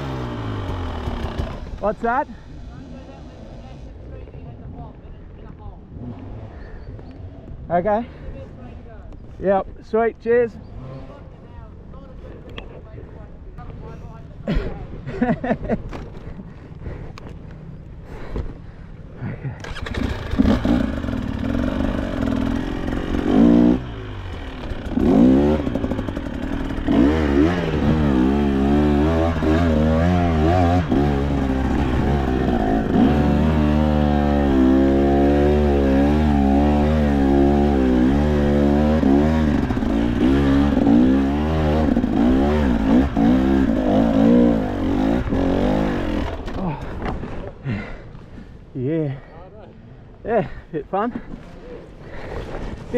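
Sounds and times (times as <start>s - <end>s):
dirt bike engine revving: 0.0s - 2.2s, 10.6s - 11.3s, 19.6s - 46.8s.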